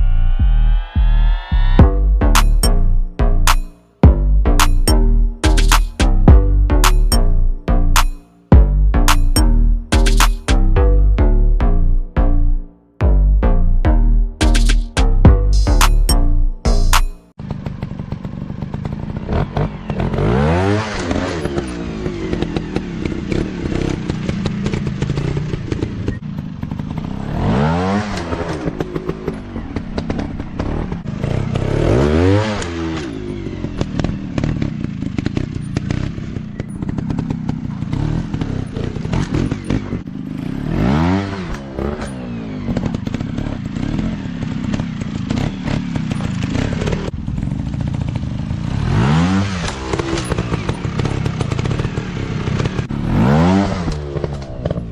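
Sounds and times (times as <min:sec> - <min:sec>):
dirt bike engine revving: 0:14.2 - 0:54.9.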